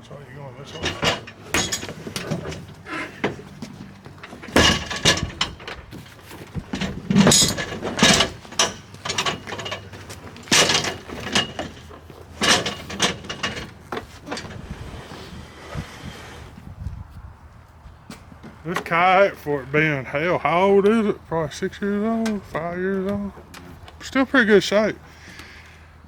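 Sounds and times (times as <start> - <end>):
tools clunking on plastic kayak: 0.8 - 14.6
loud knocks: 1.0 - 5.7.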